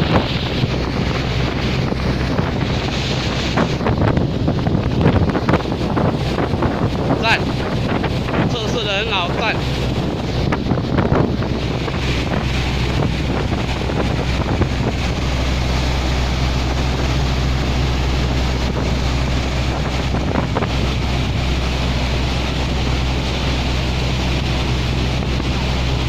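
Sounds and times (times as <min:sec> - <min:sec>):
boat diesel engine droning: 0:00.0 - 0:26.0
water rushing past hull: 0:00.0 - 0:26.0
wind buffeting microphone: 0:00.0 - 0:26.0.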